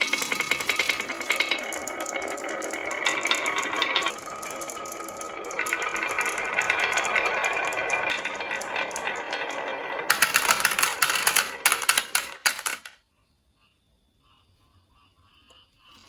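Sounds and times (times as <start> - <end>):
marbles clacking together: 0.0 - 13.0
marbles rolling down wooden slope: 0.0 - 13.0.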